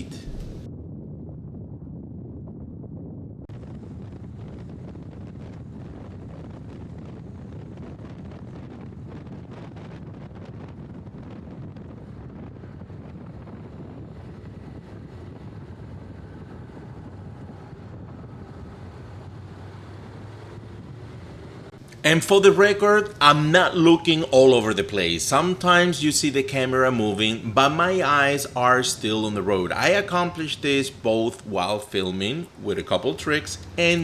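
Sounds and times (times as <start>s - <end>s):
wind buffeting microphone: 0.1s - 1.4s
road rumble: 17.4s - 34.0s.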